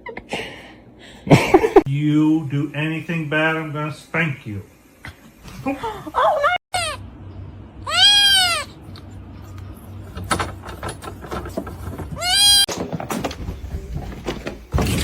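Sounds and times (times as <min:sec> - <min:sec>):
cat meowing loudly: 0:07.8 - 0:08.8, 0:12.2 - 0:12.7
rustling and small knocks: 0:10.1 - 0:15.0.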